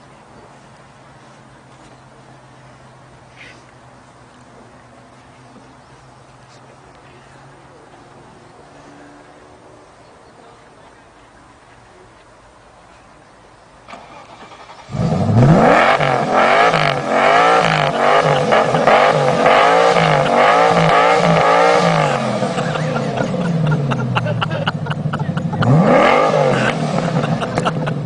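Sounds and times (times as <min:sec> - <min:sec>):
car engine revving: 0:13.9 - 0:28.0.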